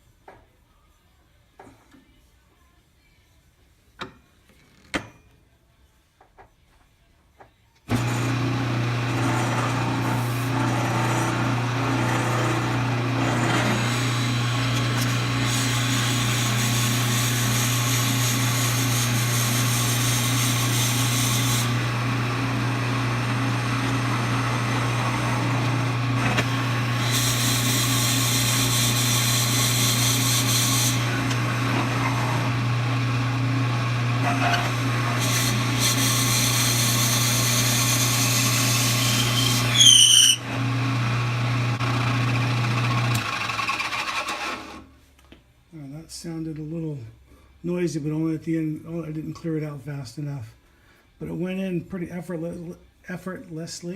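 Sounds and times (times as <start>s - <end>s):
drill bit cutting into wood: 7.9s - 40.8s
lathe motor hum: 7.9s - 44.8s.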